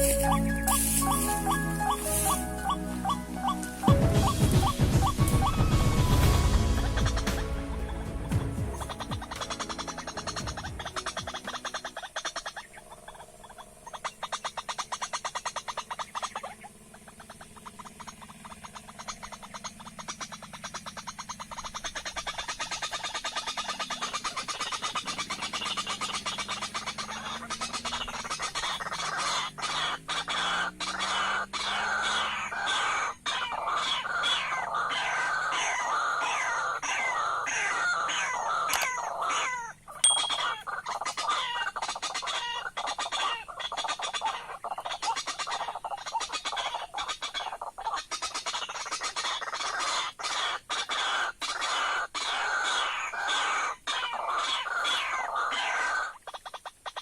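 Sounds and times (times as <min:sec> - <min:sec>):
bird harsh repeated calls: 0:00.0 - 0:57.0
low wavering tone: 0:40.0 - 0:40.6.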